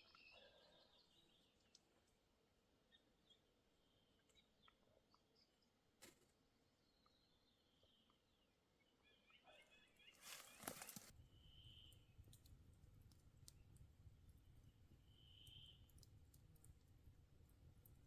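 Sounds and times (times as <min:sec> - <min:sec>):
faint clicks: 0:10.2 - 0:18.0.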